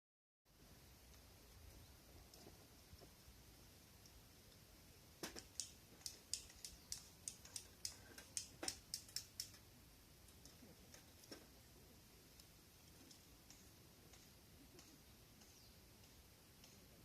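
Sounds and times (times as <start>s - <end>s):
sharp clicks and snaps: 5.2s - 9.6s, 12.3s - 16.9s.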